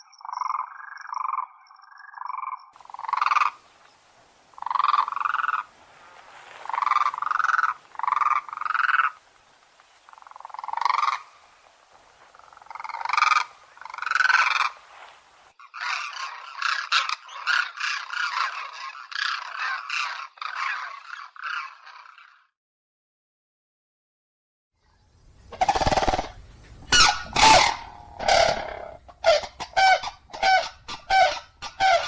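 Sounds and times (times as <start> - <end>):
cranes trumpeting calls: 2.8 - 9.3, 10.1 - 22.5, 25.5 - 32.0.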